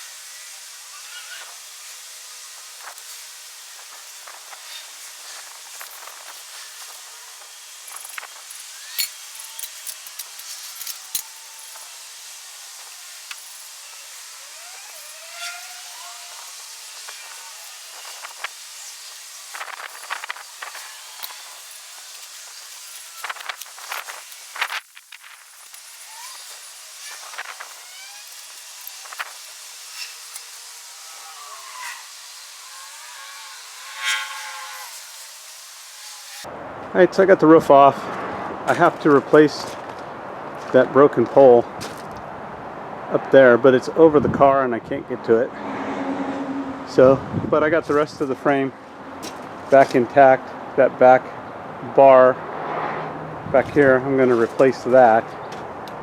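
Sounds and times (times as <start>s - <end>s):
steady hiss: 0.0s - 36.5s
gliding squeaks: 0.3s - 1.6s, 7.8s - 12.0s, 12.8s - 24.8s, 25.6s - 35.4s.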